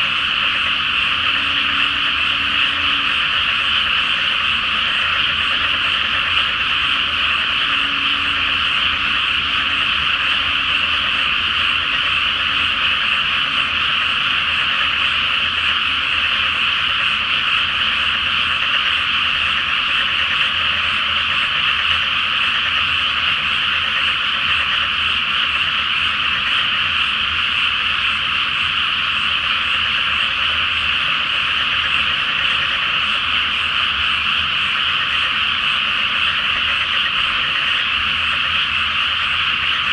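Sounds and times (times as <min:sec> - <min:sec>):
chorus of frogs croaking: 0:00.0 - 0:39.9.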